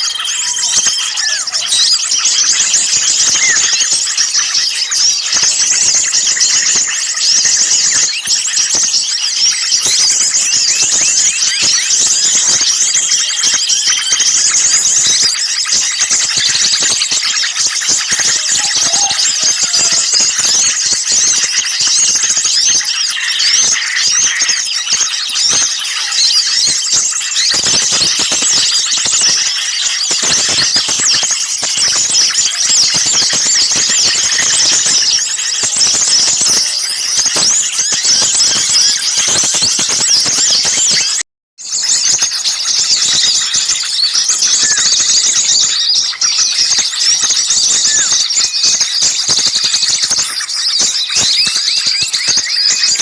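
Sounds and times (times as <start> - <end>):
small birds chirping and twittering: 0.0 - 53.0.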